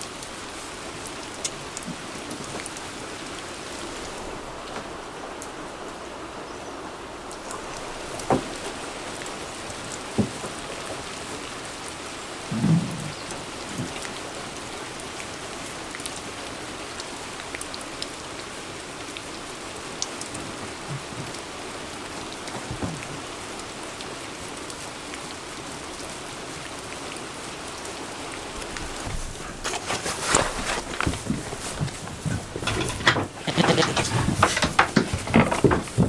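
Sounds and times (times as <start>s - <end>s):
steady rain hiss: 0.0s - 36.0s
sharp clicks and knocks: 29.0s - 36.0s.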